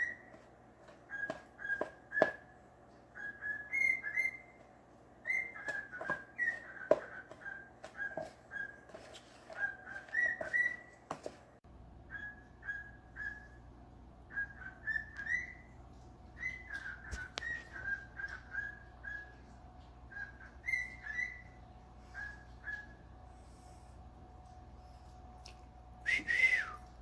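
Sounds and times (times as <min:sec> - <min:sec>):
parrot whistling: 0:00.0 - 0:00.3, 0:01.1 - 0:04.6, 0:05.2 - 0:08.9, 0:09.6 - 0:11.0, 0:12.1 - 0:13.6, 0:14.3 - 0:15.7, 0:16.4 - 0:19.4, 0:20.1 - 0:23.0.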